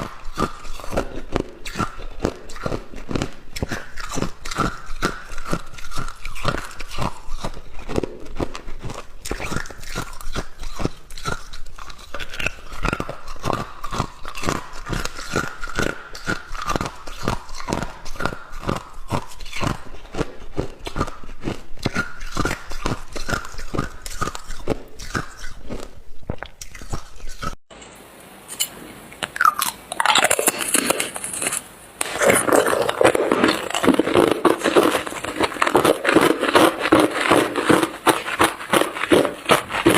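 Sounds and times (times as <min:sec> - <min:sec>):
ice being chewed: 0:00.0 - 0:27.6, 0:29.2 - 0:39.9
rustling crackling noise: 0:29.3 - 0:39.9.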